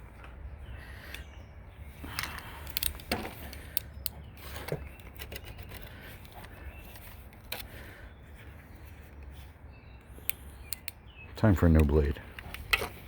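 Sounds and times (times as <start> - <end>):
sharp clicks: 10.2 - 11.0.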